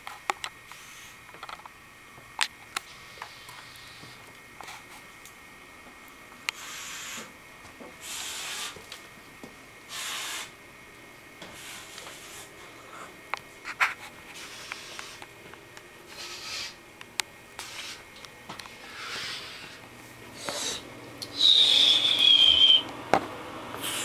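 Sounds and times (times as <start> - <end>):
person hissing with mouth: 6.6 - 7.3, 8.0 - 8.8, 9.9 - 10.6, 16.1 - 16.8, 20.4 - 20.8, 21.4 - 22.8, 23.8 - 24.0.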